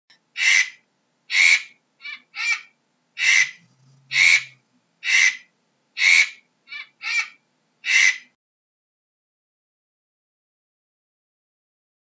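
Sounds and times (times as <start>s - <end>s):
bird harsh rasping calls: 0.4s - 8.4s.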